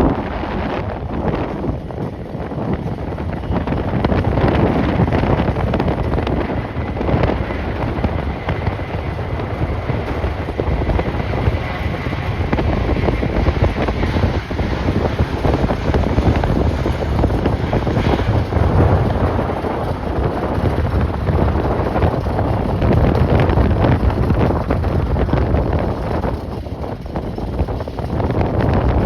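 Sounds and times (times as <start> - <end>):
gusting wind buffeting microphone: 0.0 - 29.0.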